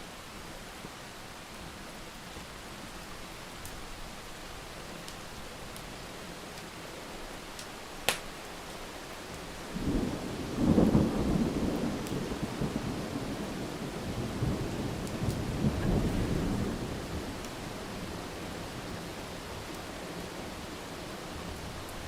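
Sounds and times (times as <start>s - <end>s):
steady rain: 0.0s - 22.0s
thunder rumbling: 9.7s - 17.5s.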